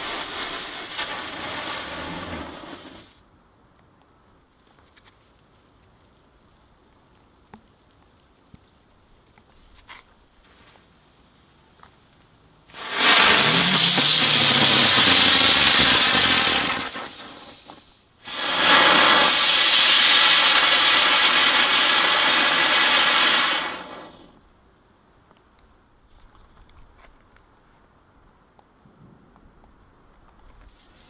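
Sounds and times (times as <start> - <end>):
firework fountain hissing: 0.0 - 3.2, 12.7 - 24.4.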